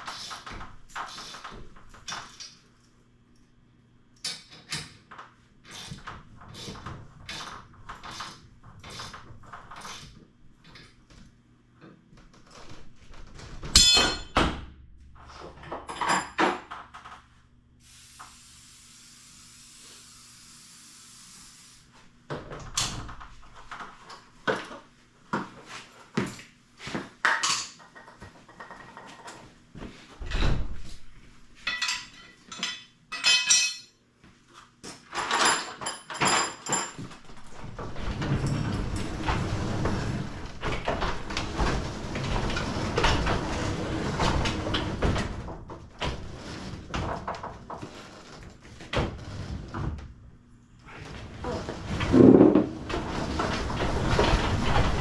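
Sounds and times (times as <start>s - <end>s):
loud metal clanks: 13.8s - 14.5s
steady hiss: 17.8s - 22.1s
tools knocking and clicking: 31.7s - 33.9s.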